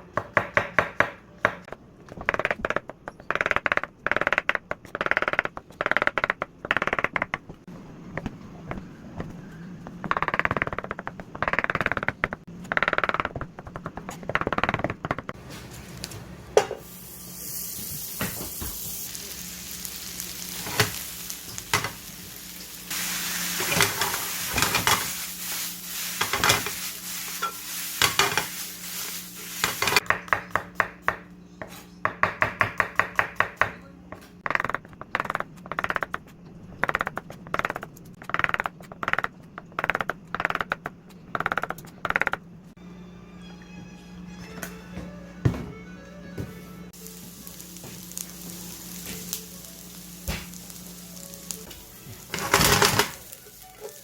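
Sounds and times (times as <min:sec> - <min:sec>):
sauce sizzling and simmering: 0:15.5 - 0:30.0, 0:47.0 - 0:54.0
spatula scraping a pan: 0:23.4 - 0:30.0.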